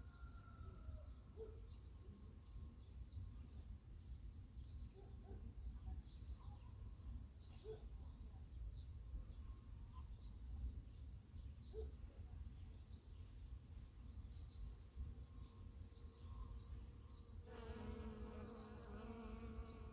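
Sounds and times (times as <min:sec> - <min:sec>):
small birds chirping: 0:04.2 - 0:19.9
bee buzzing: 0:17.5 - 0:19.9.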